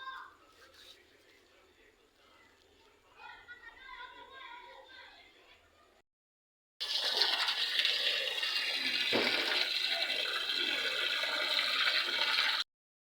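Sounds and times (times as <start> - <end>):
water gushing and splashing: 6.8 - 12.6.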